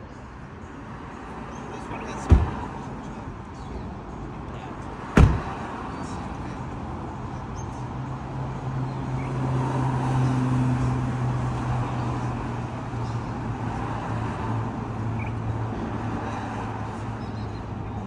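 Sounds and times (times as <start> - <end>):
car engine humming: 0.6 - 7.5.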